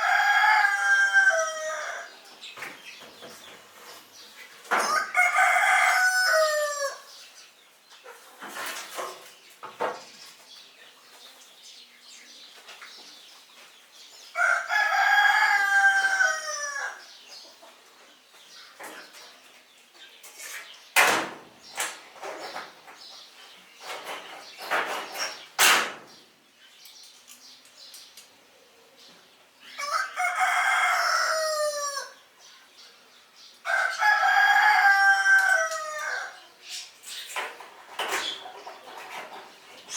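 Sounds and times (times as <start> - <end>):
rooster crowing: 0.0 - 2.2, 4.8 - 7.1, 14.4 - 17.0, 29.8 - 32.2, 33.6 - 36.4
chicken noise: 0.0 - 2.3, 4.8 - 7.2, 14.4 - 17.1, 29.7 - 32.3, 33.6 - 36.6.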